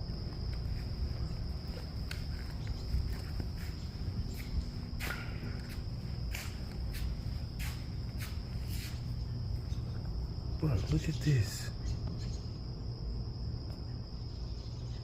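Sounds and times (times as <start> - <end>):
cricket trill: 0.0 - 15.0
light clicks and scuffs: 0.4 - 10.2.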